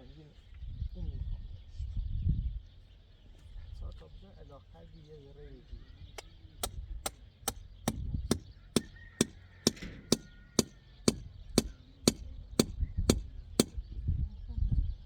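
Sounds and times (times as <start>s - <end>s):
hammer or axe striking blows: 6.6s - 13.8s.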